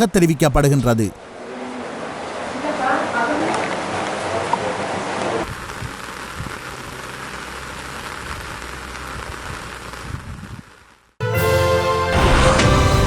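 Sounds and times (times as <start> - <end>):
rain falling: 0.1 - 11.2
music: 11.2 - 13.0.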